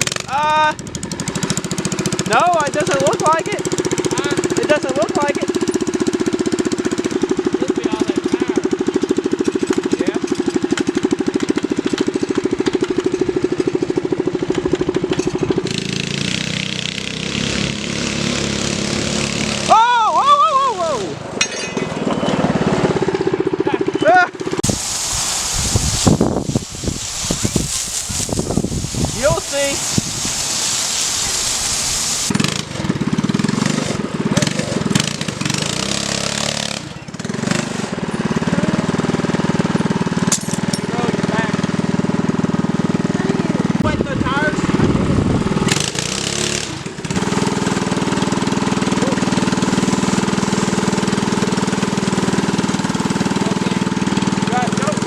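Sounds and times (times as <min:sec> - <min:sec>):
small engine idling: 0:00.0 - 0:19.8, 0:22.2 - 0:55.0
steady rushing hiss: 0:24.6 - 0:32.3, 0:47.1 - 0:54.5.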